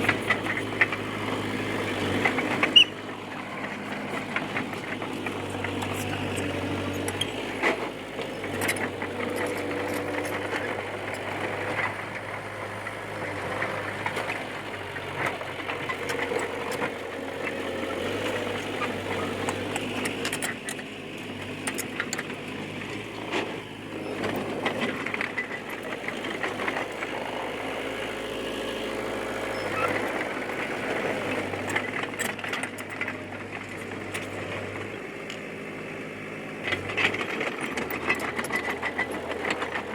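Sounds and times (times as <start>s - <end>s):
tracks and blade clanking: 0.0s - 35.6s, 36.6s - 39.9s
bulldozer diesel engine: 0.0s - 39.9s.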